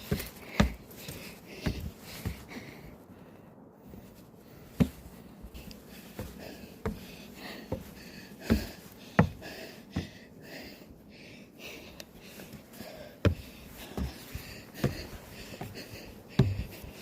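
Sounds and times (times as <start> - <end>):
footsteps climbing stairs: 0.0 - 2.7, 4.6 - 10.2, 12.2 - 17.0
person breathing heavily: 0.0 - 17.0.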